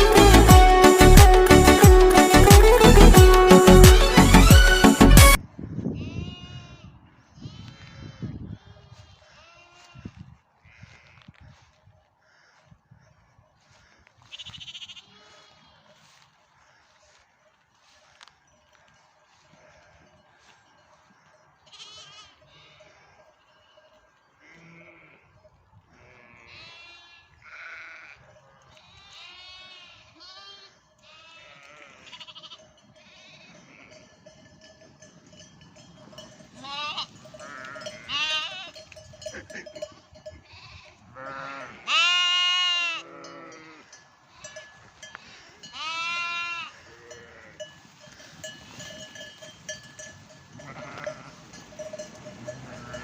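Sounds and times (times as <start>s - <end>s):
lambs bleating: 6.0s - 11.3s, 14.2s - 16.2s, 21.7s - 22.9s, 24.4s - 25.2s, 26.0s - 28.2s, 28.8s - 34.0s, 36.6s - 39.8s, 40.4s - 44.5s, 45.2s - 47.6s, 50.6s - 51.4s, 52.4s - 53.0s.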